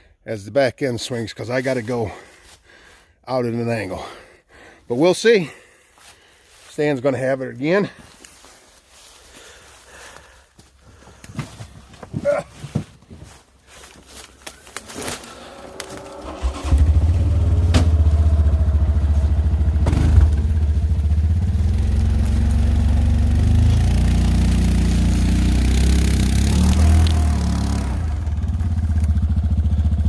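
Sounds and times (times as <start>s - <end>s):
engine starting and running: 14.7s - 30.0s.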